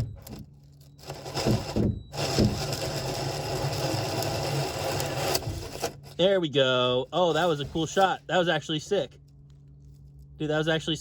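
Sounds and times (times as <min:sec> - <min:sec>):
power drill cutting hole: 0:01.0 - 0:06.1.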